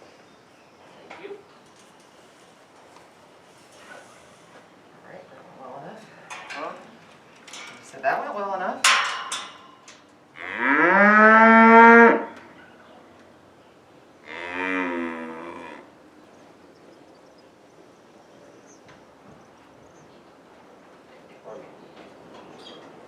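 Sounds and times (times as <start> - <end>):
cattle mooing: 10.4 - 12.5, 14.2 - 15.9.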